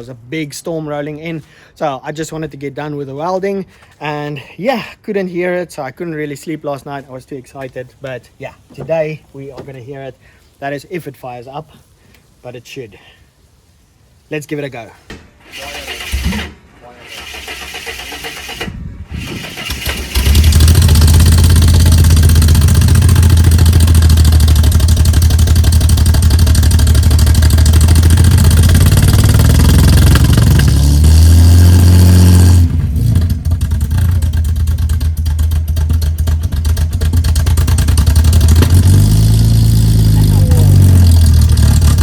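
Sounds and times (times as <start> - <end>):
man talking: 0.0 - 13.2, 14.3 - 16.0, 16.8 - 17.1, 40.1 - 40.9
car engine cranking and starting: 15.4 - 42.0
loud car engine idling: 20.5 - 30.7, 33.2 - 42.0.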